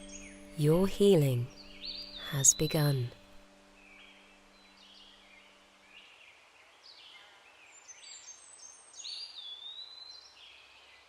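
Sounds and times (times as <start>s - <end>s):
birds chirping: 0.0s - 6.4s
faint background hiss: 0.0s - 11.0s
long clear bird whistle: 7.1s - 11.0s.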